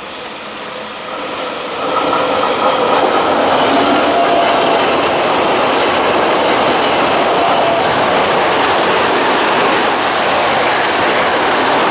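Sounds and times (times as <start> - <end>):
train wheels on rail: 0.0 - 11.9
rail joints clattering: 0.2 - 11.9.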